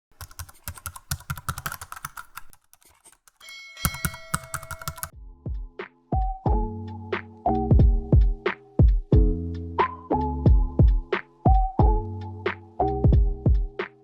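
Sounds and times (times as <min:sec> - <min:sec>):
keyboard typing clicks: 0:00.0 - 0:05.1.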